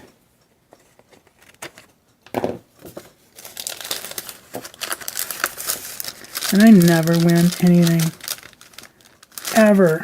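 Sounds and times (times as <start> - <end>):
cellophane bag crinkling: 3.3 - 10.0.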